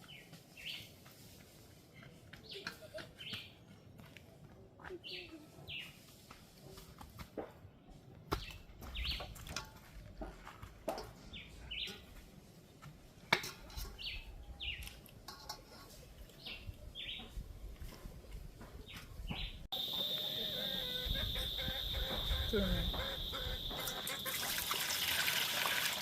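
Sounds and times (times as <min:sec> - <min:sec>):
small birds chirping: 0:02.0 - 0:04.1, 0:08.4 - 0:09.3, 0:16.3 - 0:17.4, 0:18.8 - 0:24.4.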